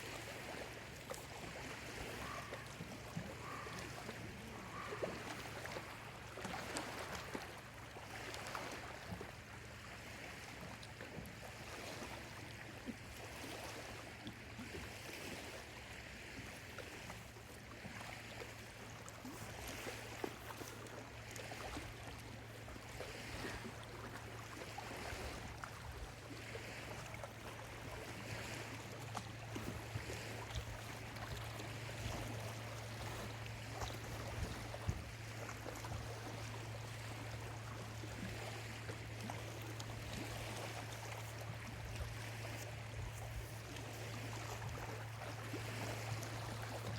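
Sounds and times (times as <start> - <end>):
waves lapping at shore: 0.0 - 46.9.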